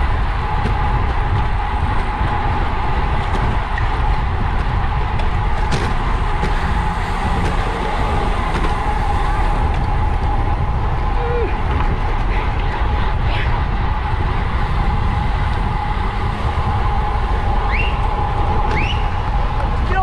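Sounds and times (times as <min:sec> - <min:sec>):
constant hum: 0:00.0 - 0:20.0
wind rushing over microphone: 0:00.0 - 0:20.0.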